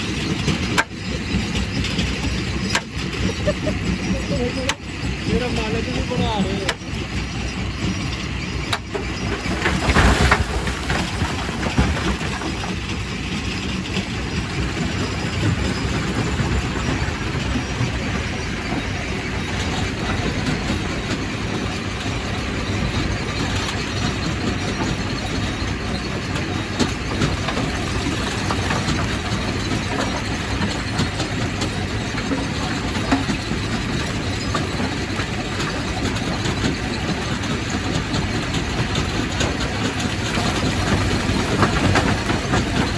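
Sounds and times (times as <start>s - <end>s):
rock crusher grinding: 8.6s - 20.7s, 23.1s - 42.9s.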